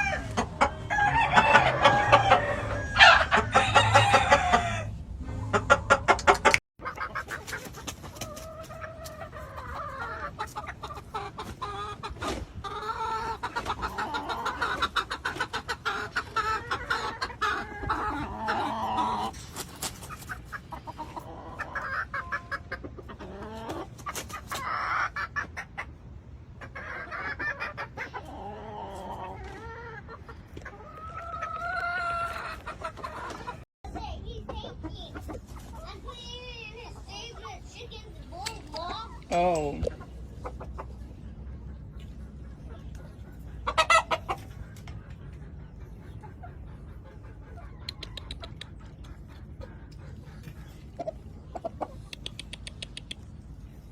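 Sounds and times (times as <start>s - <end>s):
chickens clucking: 0.0s - 53.9s
rooster crowing: 0.9s - 5.0s.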